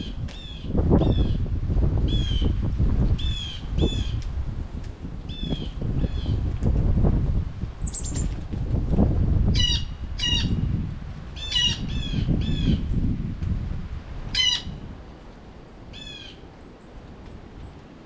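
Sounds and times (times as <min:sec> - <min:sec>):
blue jay squawks: 0:09.6 - 0:10.6, 0:11.4 - 0:12.8, 0:14.3 - 0:14.8.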